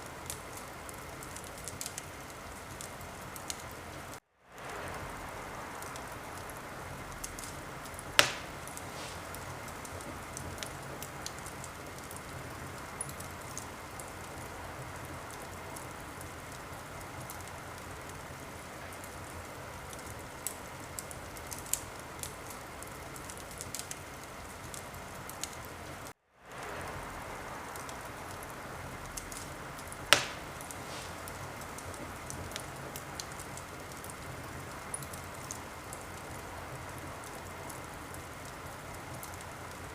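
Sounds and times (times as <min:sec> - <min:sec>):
wood fire crackling: 0:00.0 - 0:39.9
loud fire pops: 0:04.5 - 0:18.3, 0:26.5 - 0:36.4.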